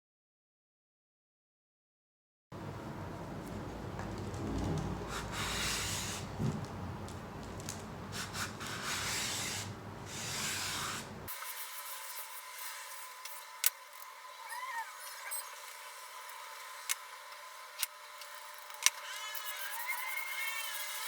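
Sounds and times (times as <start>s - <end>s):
sandpaper rasping on wood: 5.1s - 6.3s, 8.1s - 13.6s.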